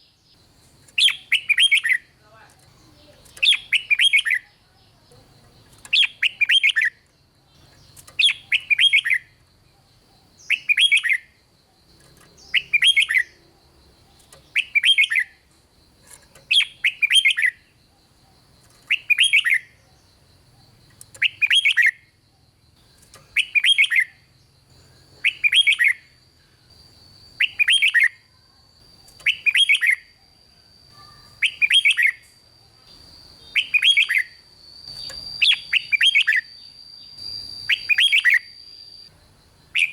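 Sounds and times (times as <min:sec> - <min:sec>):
bulbul singing warbling phrases: 0:01.0 - 0:09.4, 0:33.4 - 0:38.6.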